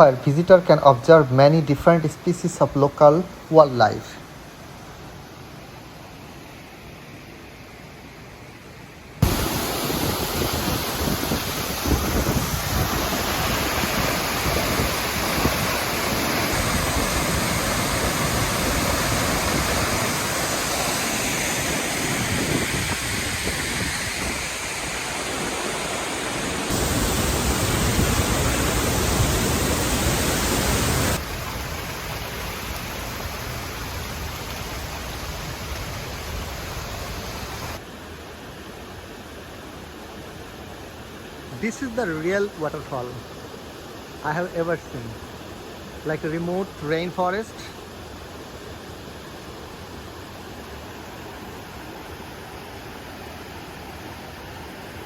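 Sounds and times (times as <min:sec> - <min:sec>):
waterfall rushing: 0:09.2 - 0:37.8, 0:41.2 - 0:55.0.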